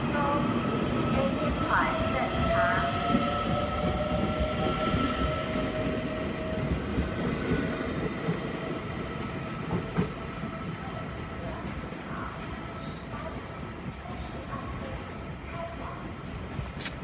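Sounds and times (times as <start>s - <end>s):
train wheels rumbling on rail: 0.0s - 17.0s
sharp click: 16.8s - 17.0s.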